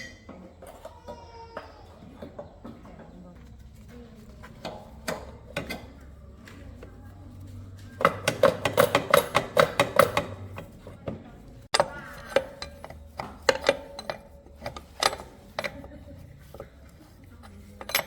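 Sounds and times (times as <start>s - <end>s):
metal tools clinking: 7.9s - 11.0s, 11.7s - 18.0s
ratchet clicking: 11.8s - 16.8s.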